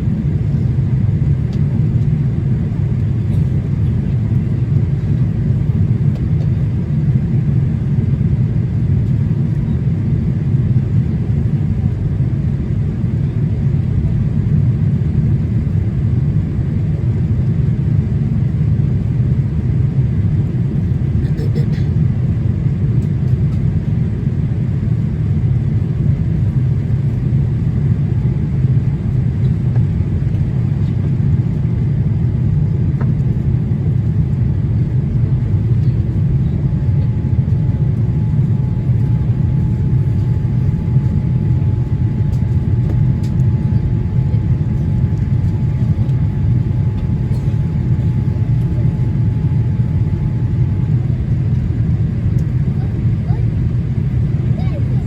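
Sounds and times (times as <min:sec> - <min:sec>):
airplane cabin drone: 0:00.0 - 0:55.0
faint steady whine: 0:24.1 - 0:53.3.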